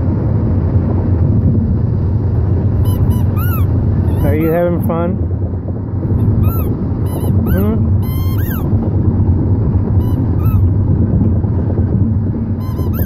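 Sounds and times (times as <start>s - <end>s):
car rumbling on road: 0.0s - 13.0s
squeaky ball squeaks: 2.8s - 4.6s, 6.2s - 8.7s, 10.0s - 10.7s, 12.6s - 13.0s.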